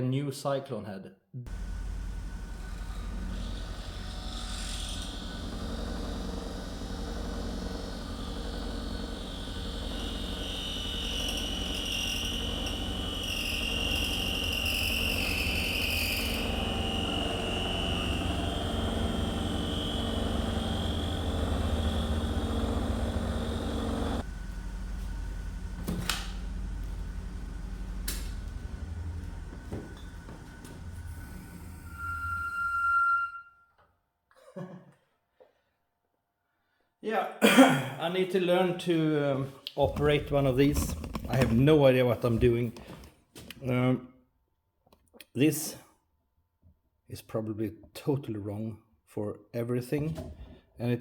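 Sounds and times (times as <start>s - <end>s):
lathe running: 1.5s - 32.0s, 39.8s - 42.4s
cutting tool screeching on metal: 3.6s - 5.5s, 10.4s - 22.8s.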